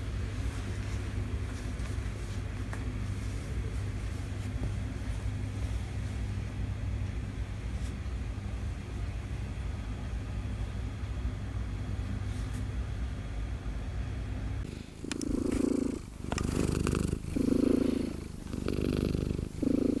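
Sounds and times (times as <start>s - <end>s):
kitten purring: 14.6s - 20.0s.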